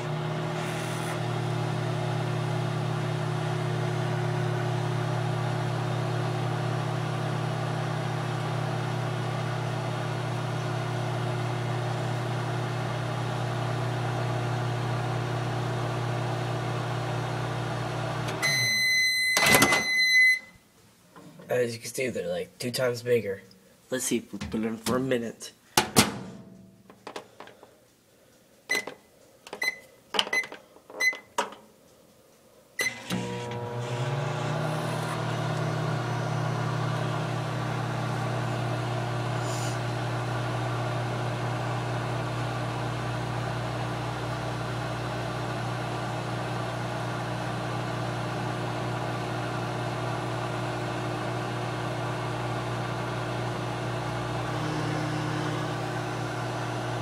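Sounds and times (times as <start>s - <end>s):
microwave oven humming: 0.0s - 20.5s, 32.8s - 57.0s
microwave keypad beeping: 18.4s - 20.6s, 28.7s - 29.0s, 29.6s - 31.4s.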